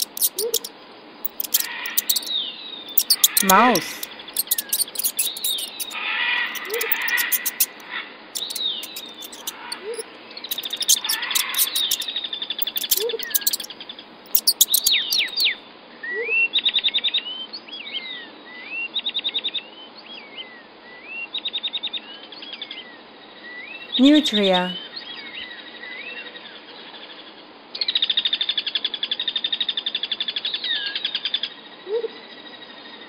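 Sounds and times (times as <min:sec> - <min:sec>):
bird calling with chirps and trills: 0:00.0 - 0:00.7, 0:01.3 - 0:07.8, 0:08.4 - 0:13.7, 0:14.3 - 0:15.5
high chirps with fast clicking: 0:00.0 - 0:07.8, 0:08.4 - 0:13.7, 0:14.3 - 0:15.5.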